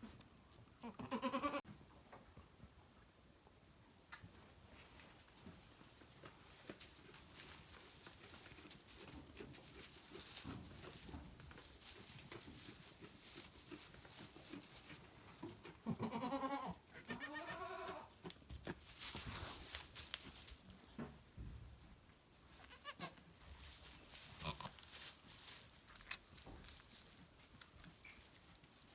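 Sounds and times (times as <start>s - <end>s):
goat bleating: 0.8s - 1.6s, 15.8s - 18.1s, 22.6s - 23.3s, 24.4s - 24.8s
soft rustling: 4.4s - 15.8s, 18.1s - 28.9s.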